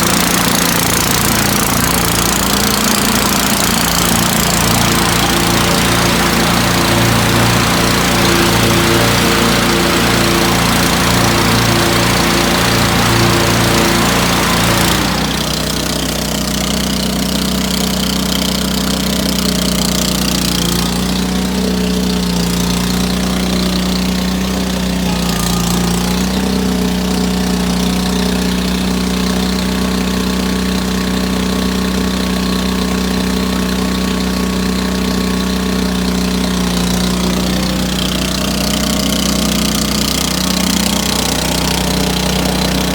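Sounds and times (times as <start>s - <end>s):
garden tractor engine running: 0.0s - 42.9s.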